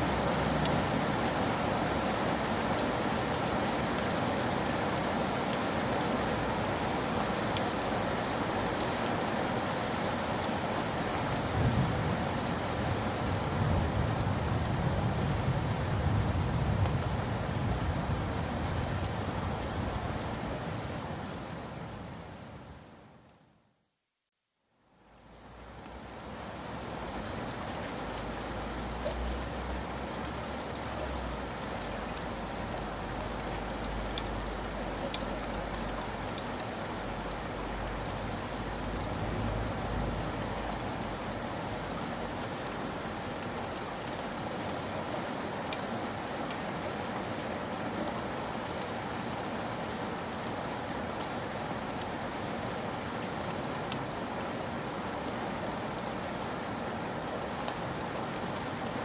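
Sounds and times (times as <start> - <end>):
steady rain: 0.0 - 59.0
raindrops ticking: 30.4 - 41.8.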